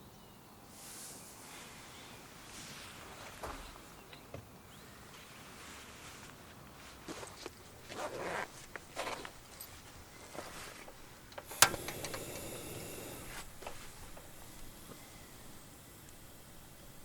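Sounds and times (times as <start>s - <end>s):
steady hiss: 0.6s - 3.0s, 10.7s - 17.0s
sharp click: 11.3s - 12.8s.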